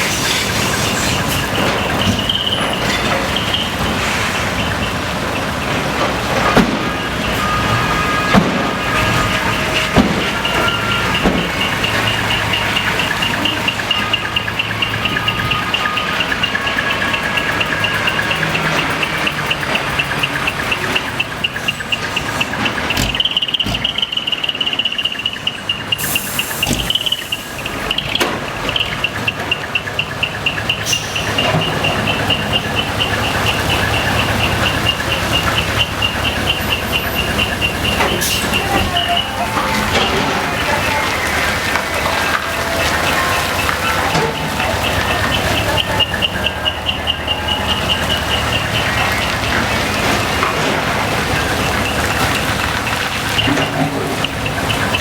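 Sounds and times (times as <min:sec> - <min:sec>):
rapid high beeping: 0:00.0 - 0:52.6
truck engine running: 0:00.0 - 0:55.0.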